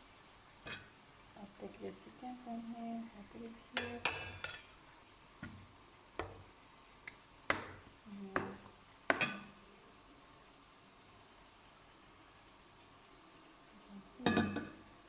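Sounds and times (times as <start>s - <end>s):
bowls and utensils clinking: 4.1s - 4.8s, 14.3s - 14.8s.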